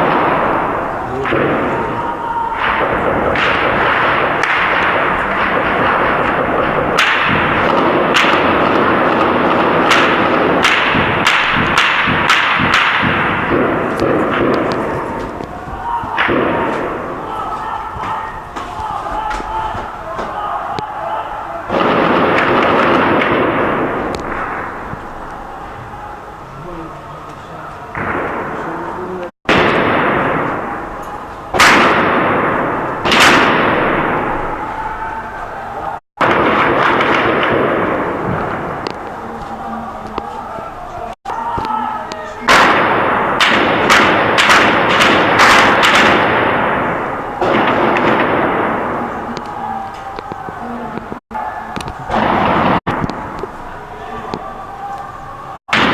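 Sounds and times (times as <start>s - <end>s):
continuous gunfire din: 0.0s - 25.0s, 27.9s - 35.2s, 35.9s - 53.8s, 55.6s - 55.9s
single gunshots cracking: 2.6s - 15.5s, 21.7s - 24.8s, 29.5s - 30.9s, 31.6s - 34.5s, 36.2s - 39.2s, 42.5s - 50.5s, 52.1s - 53.4s.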